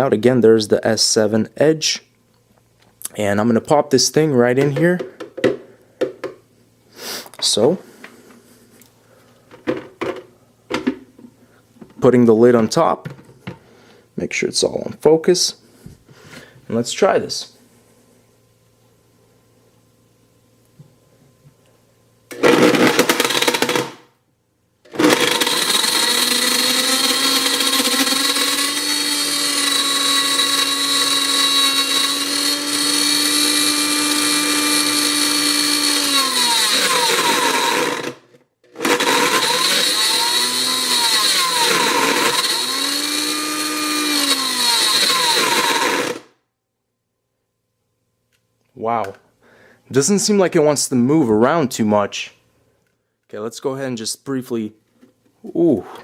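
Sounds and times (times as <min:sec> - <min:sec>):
blender motor whining: 0:22.3 - 0:24.0, 0:24.9 - 0:46.3.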